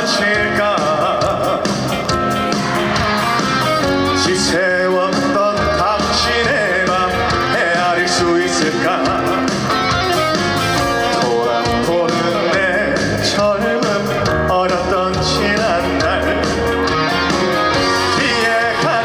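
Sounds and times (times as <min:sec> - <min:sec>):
guitar: 0:00.0 - 0:19.0
person singing with vibrato: 0:00.0 - 0:19.0
steady drum beat: 0:00.0 - 0:19.0
trot song over sound system: 0:00.0 - 0:19.0.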